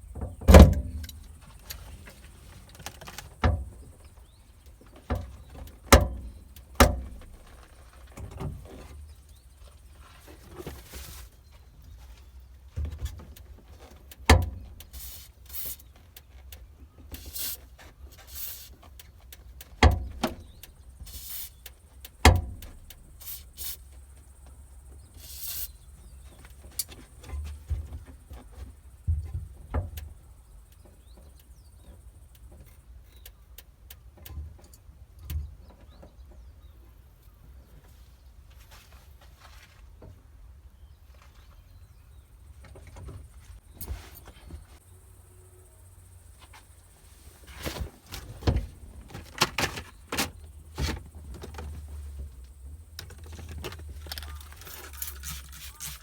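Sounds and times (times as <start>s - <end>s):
truck door knocks and clunks: 0.0s - 1.3s, 4.9s - 7.6s, 19.8s - 21.0s, 22.2s - 23.1s, 47.5s - 54.0s
short hisses: 21.1s - 21.6s, 25.2s - 25.8s.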